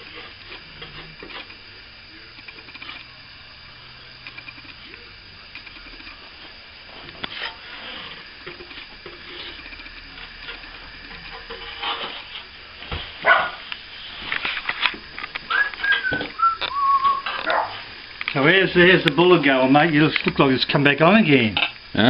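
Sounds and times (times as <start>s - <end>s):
dog barking: 13.2s - 13.6s, 17.4s - 17.8s.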